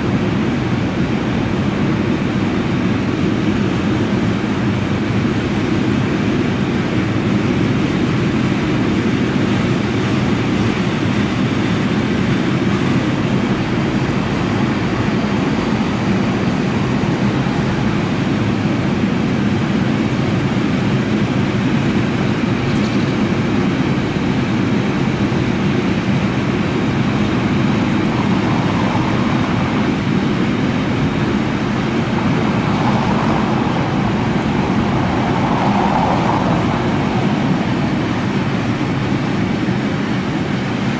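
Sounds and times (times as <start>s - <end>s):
freight train rolling past: 26.0s - 40.5s.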